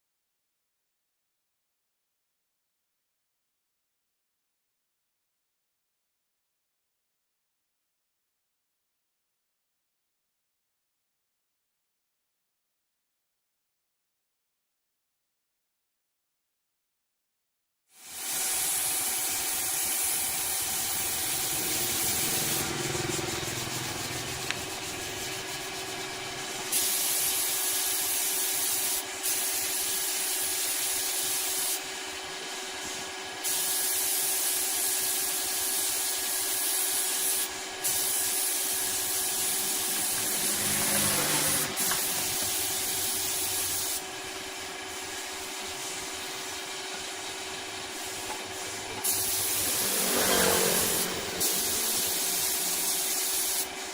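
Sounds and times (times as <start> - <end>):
loud hiss: 18.0 - 31.9, 33.4 - 53.9
machinery humming: 20.4 - 26.7, 39.4 - 43.6, 44.3 - 53.2.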